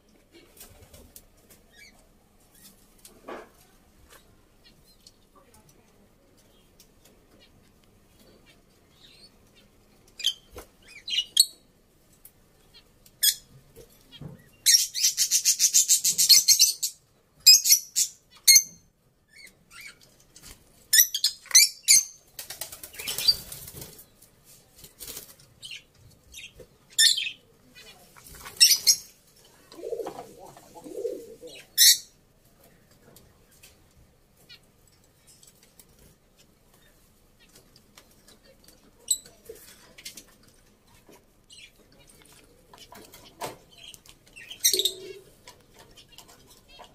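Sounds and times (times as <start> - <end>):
birds chirping: 6.4 - 11.7, 36.3 - 46.9.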